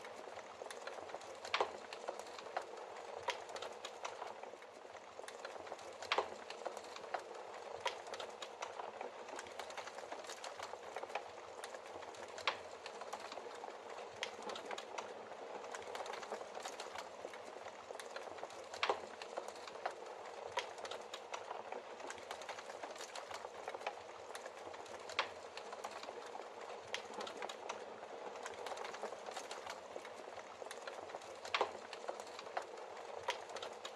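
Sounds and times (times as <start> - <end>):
fire crackles and pops: 0.0 - 33.9
wood logs burning in fireplace: 0.0 - 33.9.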